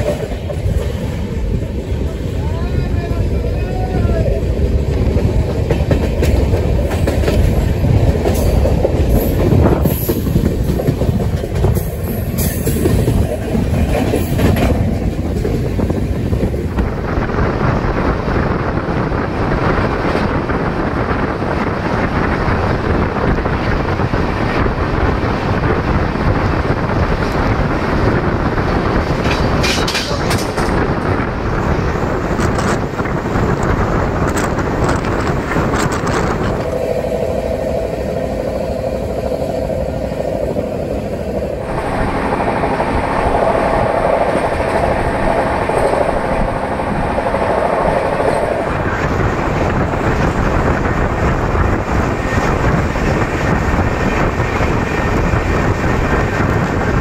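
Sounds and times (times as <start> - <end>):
train wheels rumbling on track: 0.0 - 57.0
steady hum: 36.2 - 49.8.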